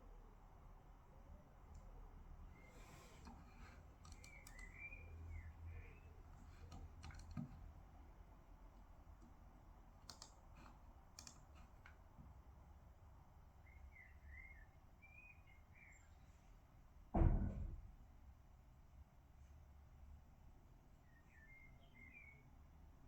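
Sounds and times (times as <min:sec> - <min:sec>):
keyboard or mouse clicks: 0:04.0 - 0:04.8, 0:06.7 - 0:07.6, 0:10.0 - 0:11.9
deep muffled thump: 0:17.2 - 0:17.8.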